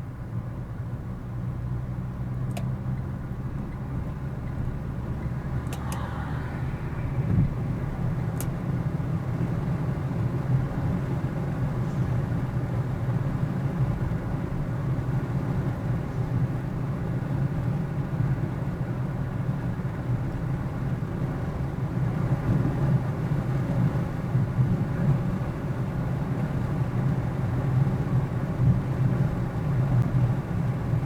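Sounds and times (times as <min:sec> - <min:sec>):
car engine and tyre rumble: 0:00.0 - 0:31.0
brief click: 0:05.6 - 0:06.1.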